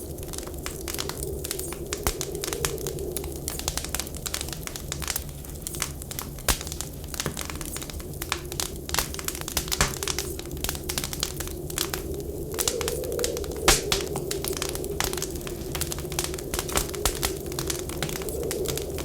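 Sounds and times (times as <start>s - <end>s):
wind whistling: 0.0s - 19.0s
wood fire crackling and popping: 0.0s - 19.0s.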